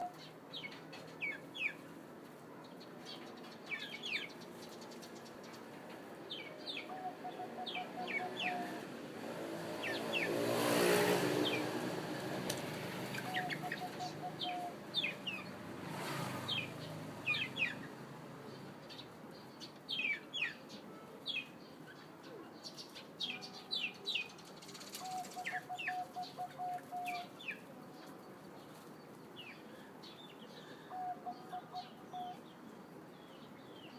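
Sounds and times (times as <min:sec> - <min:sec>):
small birds chirping: 0:00.0 - 0:33.9
dove cooing: 0:06.7 - 0:08.9, 0:13.0 - 0:15.5, 0:25.0 - 0:27.4, 0:30.6 - 0:32.4.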